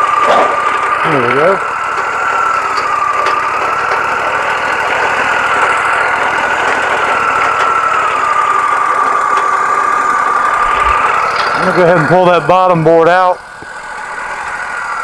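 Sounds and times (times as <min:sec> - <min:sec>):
band saw blade whining: 0:00.0 - 0:15.0
engine drone: 0:00.0 - 0:15.0.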